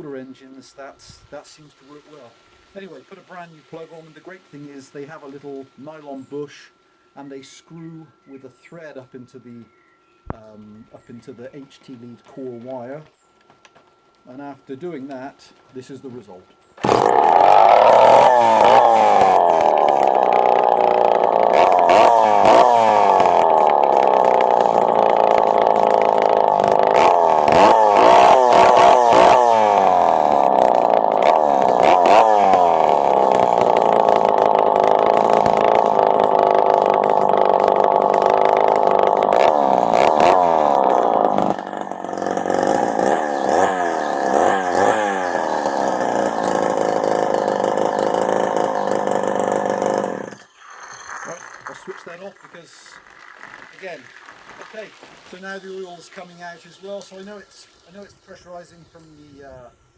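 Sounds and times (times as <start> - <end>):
chainsaw engine revving: 16.8 - 59.3.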